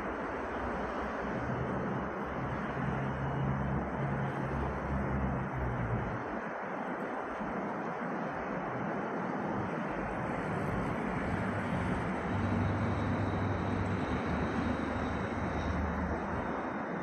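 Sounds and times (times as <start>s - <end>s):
train rushing noise: 0.0s - 17.0s
low hum: 9.9s - 17.0s.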